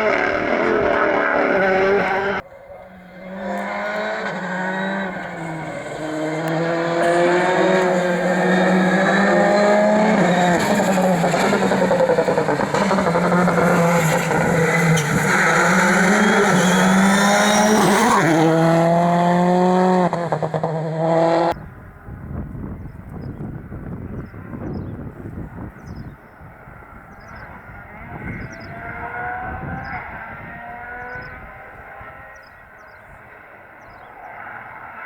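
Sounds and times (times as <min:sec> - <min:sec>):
rally car engine revving: 0:00.0 - 0:21.6, 0:26.8 - 0:32.9.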